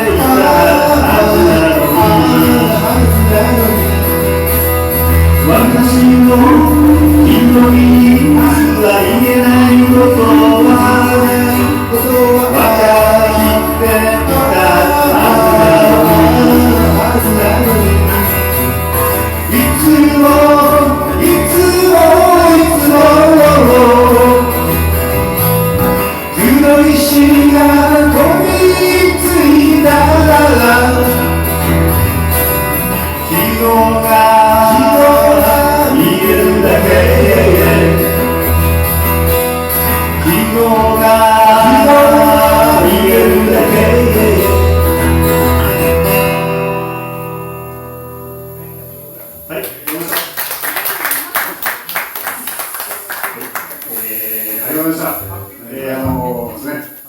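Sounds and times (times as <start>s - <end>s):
person singing: 0.0s - 25.3s, 26.0s - 32.2s, 32.9s - 39.2s, 39.8s - 46.0s
live band playing: 0.0s - 50.0s.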